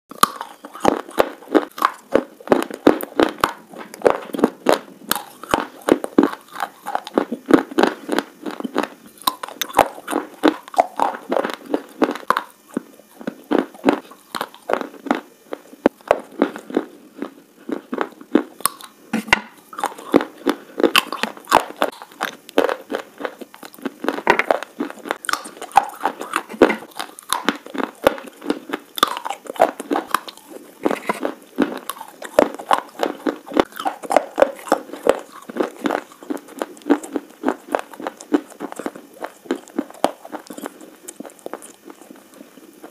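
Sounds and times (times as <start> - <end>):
slate pencil being chewed: 17.8 - 42.9.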